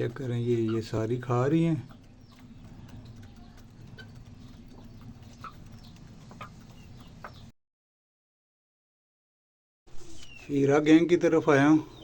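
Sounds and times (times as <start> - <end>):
hens clucking softly: 0.0 - 7.5
hens pecking grain: 0.0 - 7.5.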